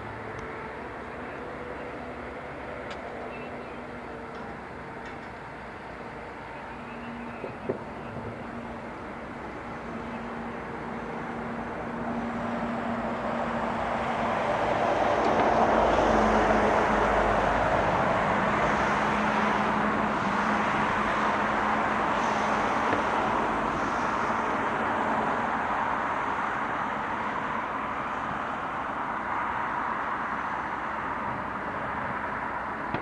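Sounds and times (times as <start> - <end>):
train rumbling: 3.8 - 26.6.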